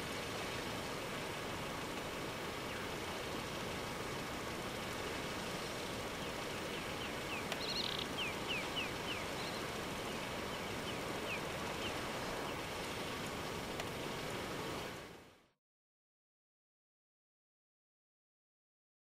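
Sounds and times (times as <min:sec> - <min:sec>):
outdoor hiss: 0:00.0 - 0:15.5
bird chirping: 0:07.0 - 0:09.7.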